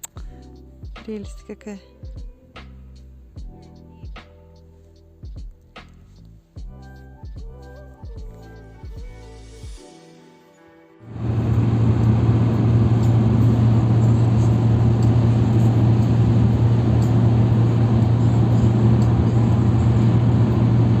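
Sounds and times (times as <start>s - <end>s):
car engine and road noise: 11.1s - 21.0s.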